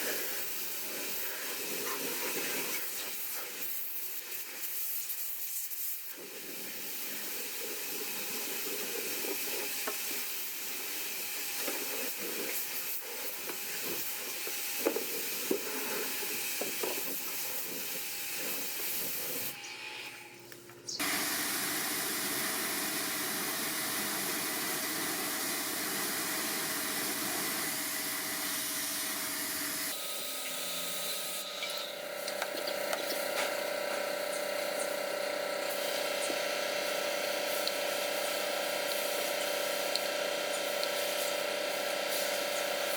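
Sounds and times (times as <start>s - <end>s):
hissing spray from cleaning equipment: 0.0s - 19.6s, 21.0s - 42.9s
machine tones: 29.9s - 42.9s.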